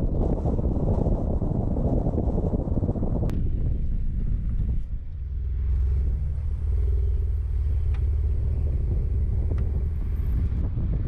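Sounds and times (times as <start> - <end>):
wind rumble on microphone: 0.0 - 11.0
car engine running: 2.2 - 11.0.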